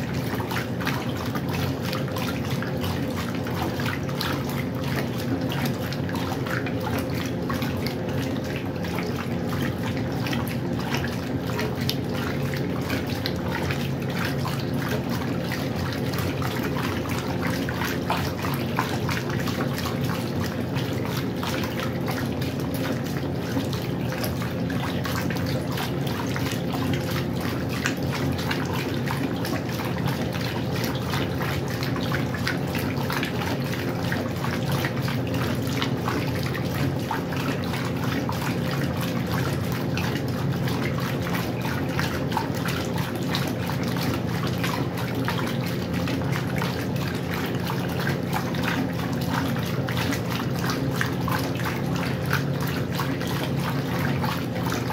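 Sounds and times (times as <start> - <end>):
washing machine motor hum: 0.0 - 54.9
water splashing: 0.0 - 54.9.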